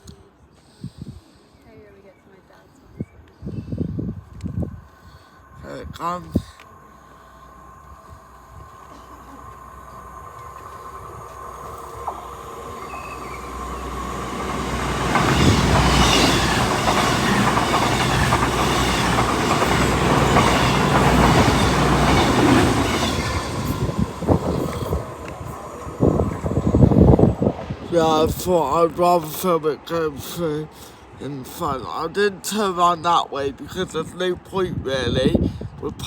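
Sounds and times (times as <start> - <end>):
train passing at speed: 4.0 - 34.5
rail clatter: 9.0 - 28.4.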